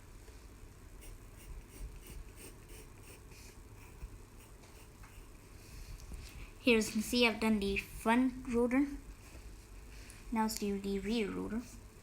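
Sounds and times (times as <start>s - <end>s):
low steady hum: 0.0s - 12.0s
pencil drawing on paper: 1.0s - 5.3s.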